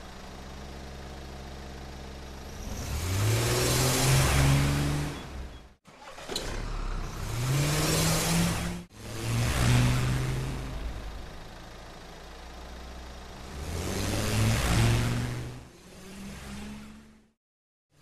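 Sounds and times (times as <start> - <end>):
vehicle engine revving: 2.4 - 11.5, 12.8 - 17.4.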